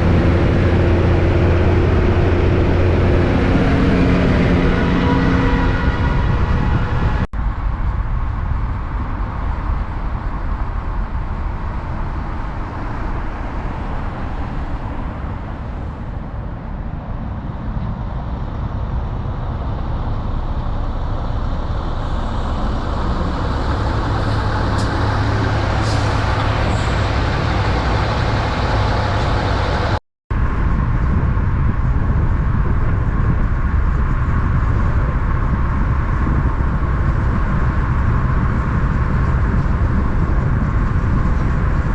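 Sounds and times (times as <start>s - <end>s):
big-rig engines and tyre noise: 0.0s - 41.9s.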